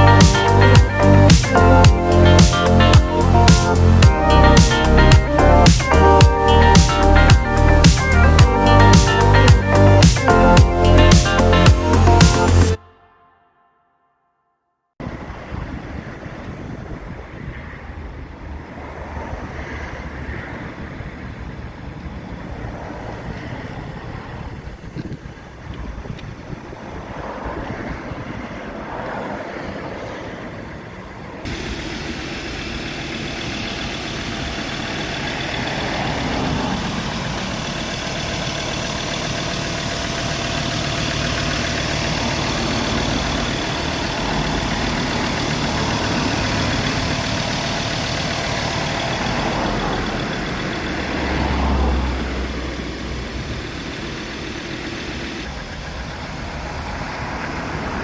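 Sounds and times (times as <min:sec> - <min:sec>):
pickup engine running: 0:00.0 - 0:12.8, 0:31.5 - 0:58.0.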